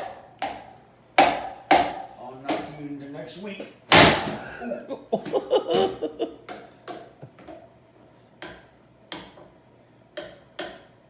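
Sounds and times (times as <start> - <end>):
stick knocking on hard object: 0.4 - 2.8.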